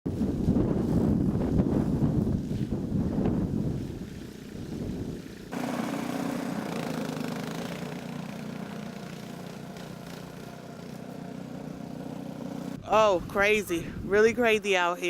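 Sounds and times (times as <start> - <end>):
wind noise: 0.1 - 5.6, 12.8 - 14.8
engine running at low pitch: 2.9 - 12.8.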